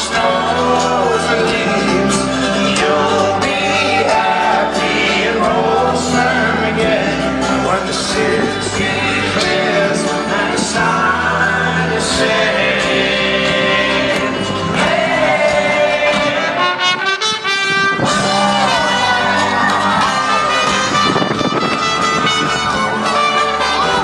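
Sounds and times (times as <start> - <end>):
live folk-rock band playing: 0.0 - 24.0
brass horns: 9.3 - 24.0.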